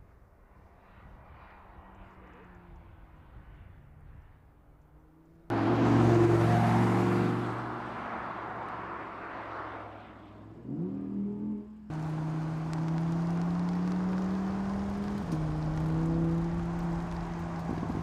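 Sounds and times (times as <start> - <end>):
sports car engine revving: 5.5 - 8.7, 10.5 - 18.0.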